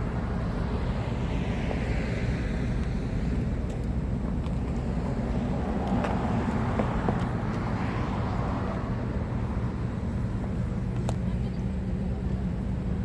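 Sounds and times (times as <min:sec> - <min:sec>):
vehicle passing: 0:00.0 - 0:10.4
low rumble of motor traffic: 0:00.0 - 0:13.0.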